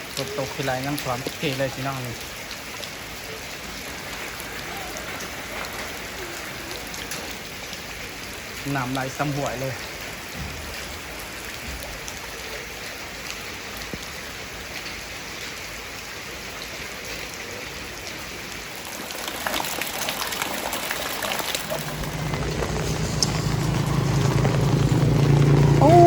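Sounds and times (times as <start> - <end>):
rain hissing: 0.0 - 26.0
running floodwater: 0.0 - 26.0
motor humming: 21.6 - 26.0.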